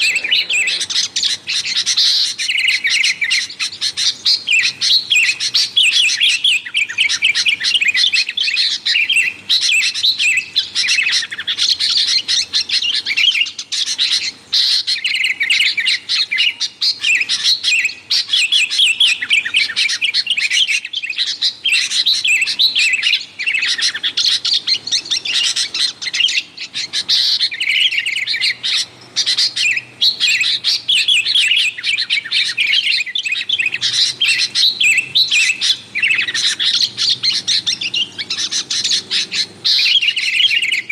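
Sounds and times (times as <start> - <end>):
birds chirping and chattering: 0.0 - 40.9.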